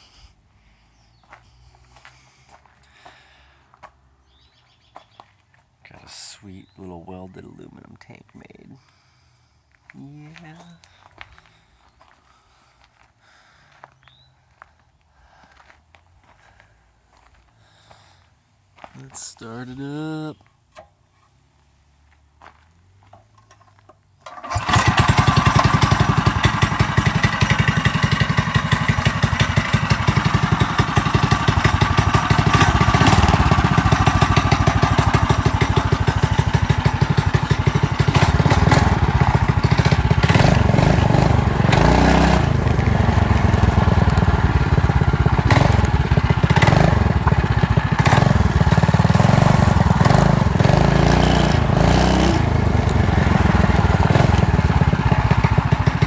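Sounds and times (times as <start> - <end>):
small engine running: 24.4 - 56.0.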